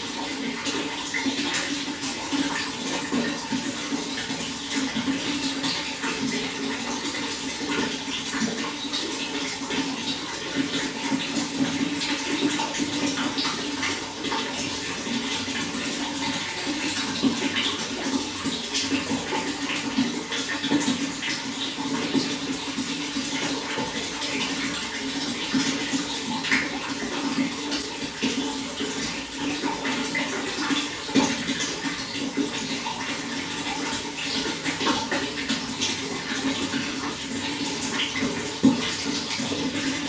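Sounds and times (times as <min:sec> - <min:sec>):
running water splashing: 0:00.0 - 0:40.0.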